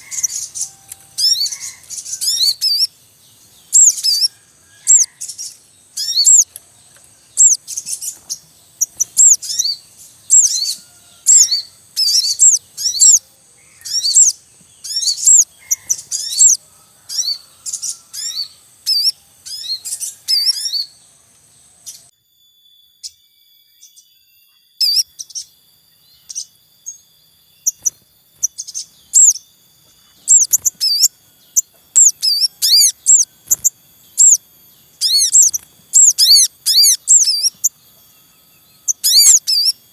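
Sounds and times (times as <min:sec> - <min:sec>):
birds chirping: 0:00.0 - 0:22.2, 0:22.9 - 0:39.9
faint high-pitched hum: 0:00.0 - 0:39.9.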